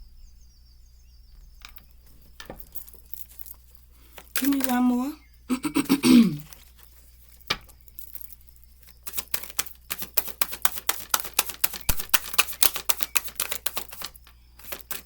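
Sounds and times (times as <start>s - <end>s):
cards shuffling clicks: 1.4s - 15.0s
card tap: 9.1s - 15.0s.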